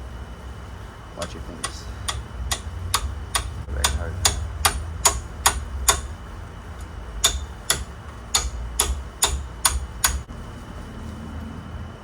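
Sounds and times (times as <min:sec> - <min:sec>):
hammer striking metal: 0:01.2 - 0:06.2, 0:07.2 - 0:10.3.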